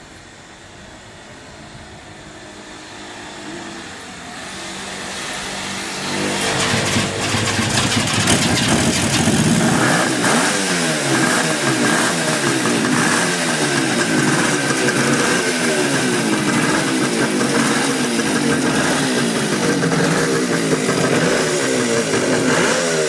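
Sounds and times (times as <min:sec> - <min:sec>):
electric starter cranking: 0:05.9 - 0:23.0
two-stroke engine unsteady idle: 0:06.4 - 0:23.0.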